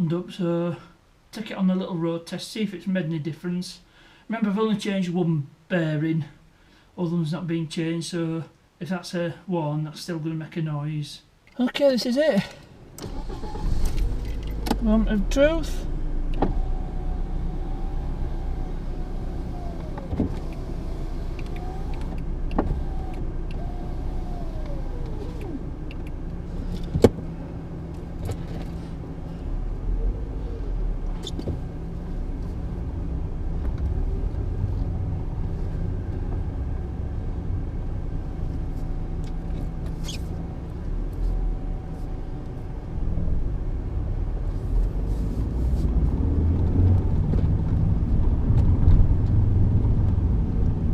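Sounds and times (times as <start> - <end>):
car road rumble: 12.6 - 50.9
wheel bearing drone: 16.2 - 27.2.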